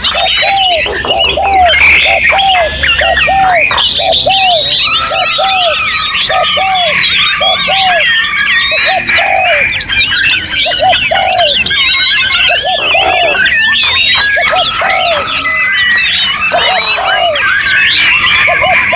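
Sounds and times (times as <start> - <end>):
songbirds chirping and whistling: 0.0 - 18.9.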